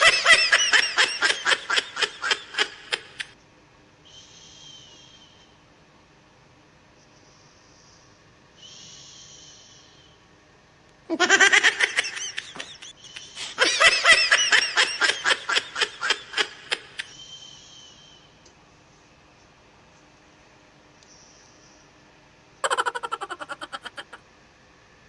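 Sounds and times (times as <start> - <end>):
person laughing hard: 0.0 - 3.3, 11.1 - 17.1, 22.6 - 24.2
faint whistling breath: 4.0 - 5.7, 7.0 - 10.4, 17.1 - 18.4, 21.0 - 22.1.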